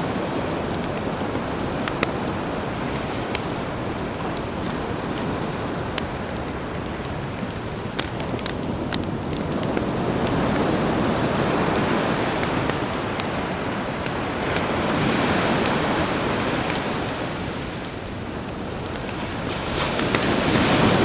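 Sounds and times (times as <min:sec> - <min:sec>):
campfire crackling: 0:00.0 - 0:21.0
sea waves washing ashore: 0:00.0 - 0:21.0.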